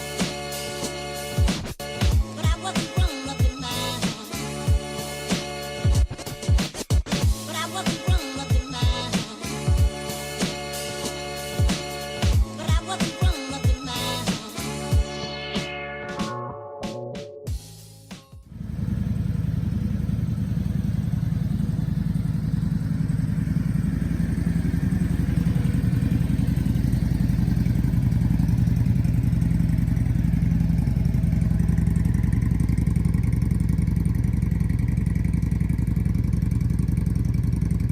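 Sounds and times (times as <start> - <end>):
motorcycle engine running: 7.2 - 15.1, 18.4 - 37.9.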